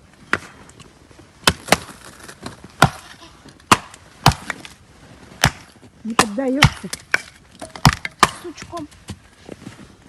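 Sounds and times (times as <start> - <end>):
axe striking firewood: 1.4 - 8.9.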